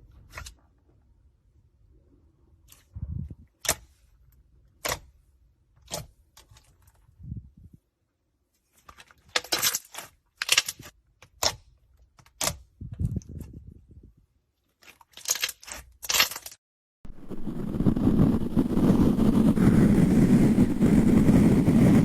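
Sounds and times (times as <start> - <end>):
steady loud noise: 17.1 - 22.0.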